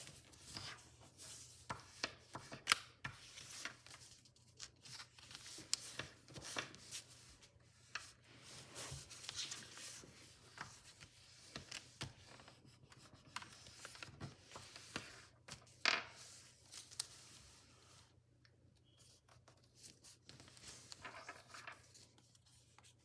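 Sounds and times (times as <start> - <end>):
paper being folded and creased: 0.0 - 17.6.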